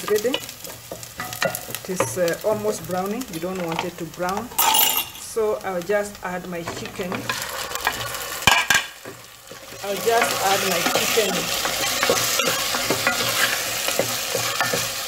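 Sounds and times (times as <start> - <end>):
meat sizzling in oil: 0.0 - 15.0
wooden spoon scraping a pot: 6.6 - 15.0.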